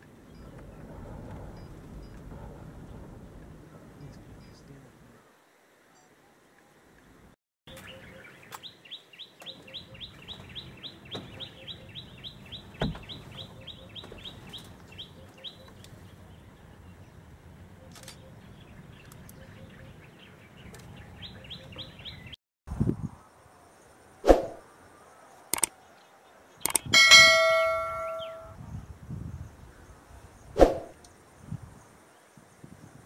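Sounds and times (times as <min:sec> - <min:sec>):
high chipping bird calls: 0:07.7 - 0:17.2, 0:25.4 - 0:28.6
soft low bird notes: 0:26.8 - 0:28.6.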